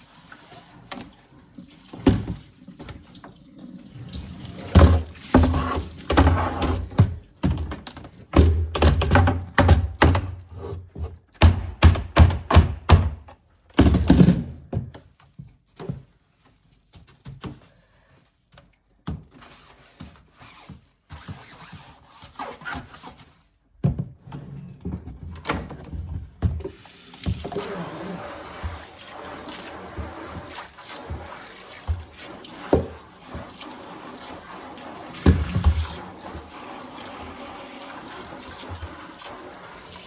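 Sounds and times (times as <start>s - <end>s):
freezer trays knocking: 11.4s - 14.6s.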